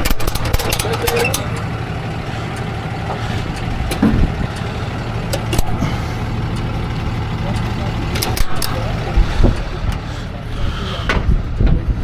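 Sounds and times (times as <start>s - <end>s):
clicks and knocks: 0.0s - 1.8s, 3.1s - 4.6s
vehicle engine idling: 0.0s - 12.0s.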